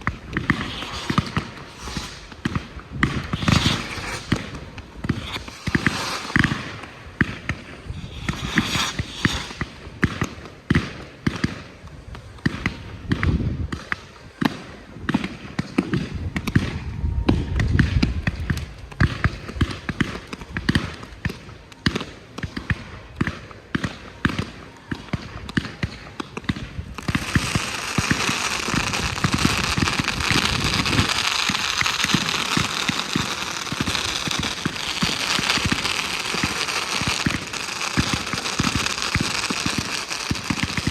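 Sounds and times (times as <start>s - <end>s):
fireworks thuds and pops: 0.0s - 24.5s, 25.1s - 40.9s
fireworks crackle: 0.0s - 40.9s.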